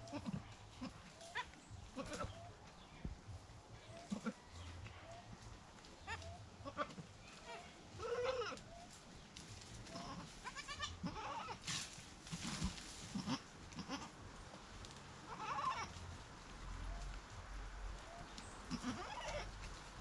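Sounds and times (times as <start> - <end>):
goats bleating: 0.0 - 2.4, 4.0 - 4.4, 6.0 - 8.6, 9.9 - 11.6, 12.3 - 14.2, 15.2 - 16.0, 18.7 - 19.6.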